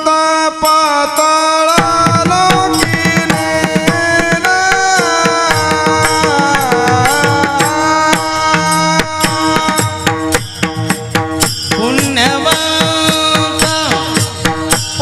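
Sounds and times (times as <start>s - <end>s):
harmonium drone: 0.0s - 15.0s
person singing devotional melody: 0.0s - 15.0s
hand drum: 1.8s - 15.0s.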